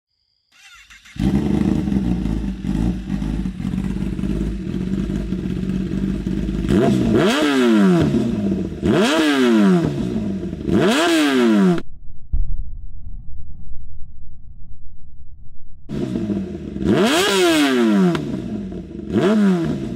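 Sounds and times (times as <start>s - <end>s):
motorcycle engine idling and revving: 0.6s - 11.9s, 15.9s - 19.9s.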